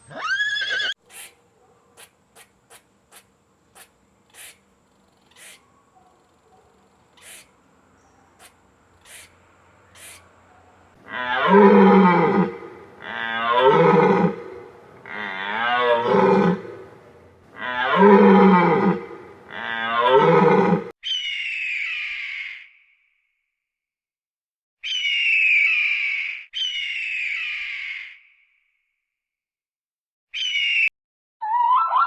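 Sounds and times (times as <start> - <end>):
animal calling with wavering pitch: 30.4 - 32.0.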